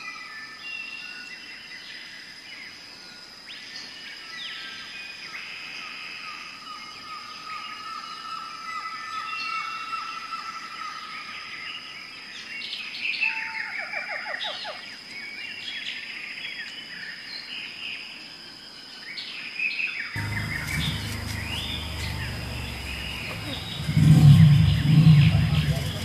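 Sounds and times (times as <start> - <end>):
small birds chirping and trilling: 20.1 - 26.0
low rumble: 20.2 - 26.0.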